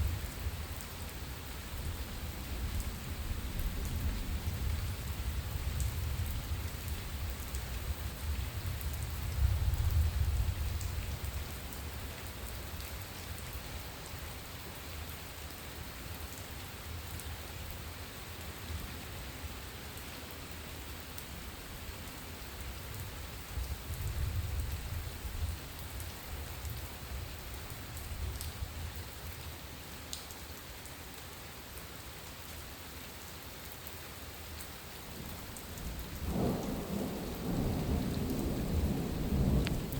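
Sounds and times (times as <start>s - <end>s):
heavy rain: 0.0s - 39.9s
distant thunder rumbling: 35.9s - 39.9s.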